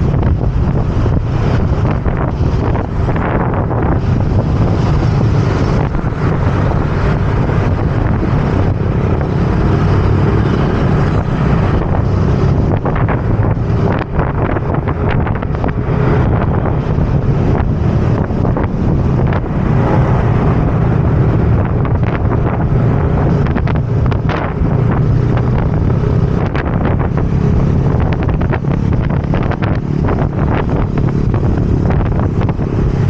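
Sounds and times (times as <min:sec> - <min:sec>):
road noise: 0:00.0 - 0:33.0
wind buffeting microphone: 0:00.0 - 0:33.0.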